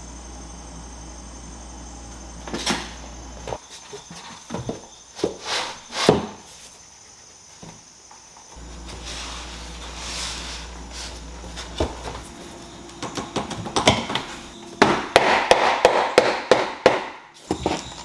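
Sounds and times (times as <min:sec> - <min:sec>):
low steady hum: 0:00.0 - 0:03.6
hammer knocking floor planks: 0:13.0 - 0:17.7.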